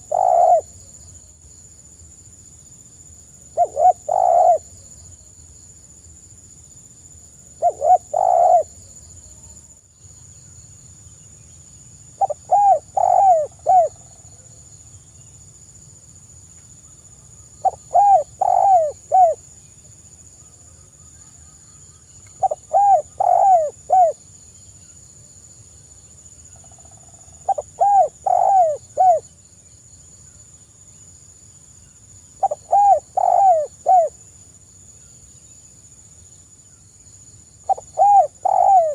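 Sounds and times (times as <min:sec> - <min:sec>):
dove cooing: 0:00.0 - 0:00.8, 0:03.6 - 0:04.7, 0:07.6 - 0:08.8, 0:12.2 - 0:14.0, 0:17.6 - 0:19.4, 0:22.4 - 0:24.2, 0:27.4 - 0:29.2, 0:32.4 - 0:34.2, 0:37.7 - 0:38.9.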